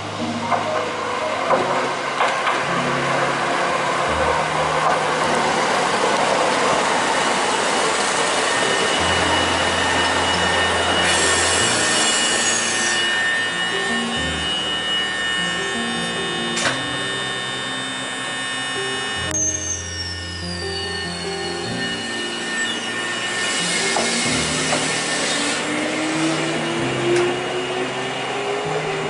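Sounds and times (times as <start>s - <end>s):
train wheels rumbling on rails: 0.1s - 12.5s, 23.7s - 29.0s.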